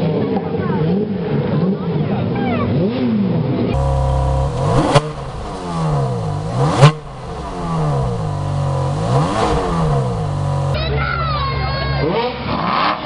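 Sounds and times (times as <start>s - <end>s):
car engine revving: 3.8s - 10.8s.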